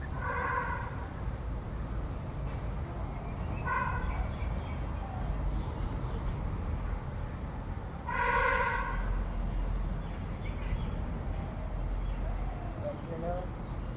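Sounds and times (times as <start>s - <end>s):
animal calling: 0.0s - 1.0s.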